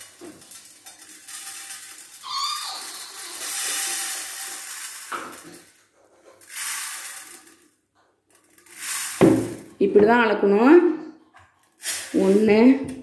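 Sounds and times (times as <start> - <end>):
grain pouring into a vessel: 0.0 - 7.7, 8.4 - 9.8, 11.8 - 12.4.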